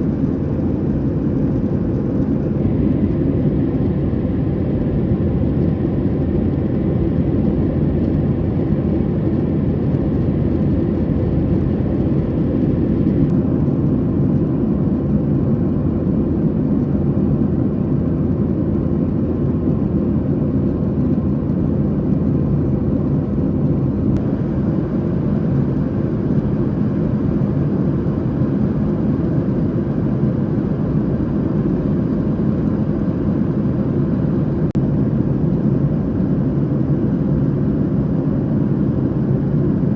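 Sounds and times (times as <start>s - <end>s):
airflow over fuselage: 0.0s - 39.9s
jet engines rumbling: 0.0s - 39.9s.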